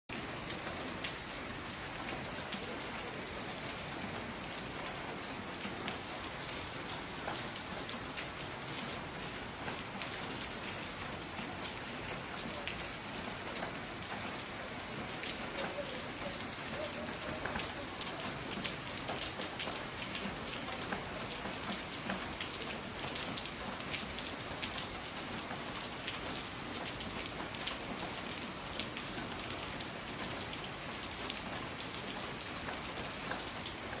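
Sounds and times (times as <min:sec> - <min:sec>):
heavy rain splashing: 0:00.1 - 0:34.0
sharp raindrop strikes: 0:00.1 - 0:34.0.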